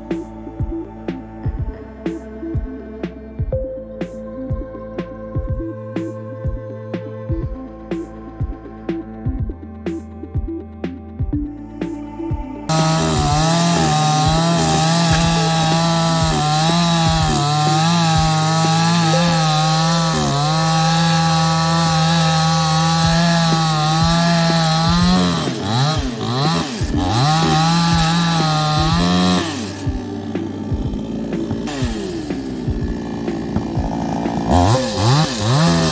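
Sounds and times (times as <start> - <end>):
chainsaw cutting wood: 12.7 - 35.9.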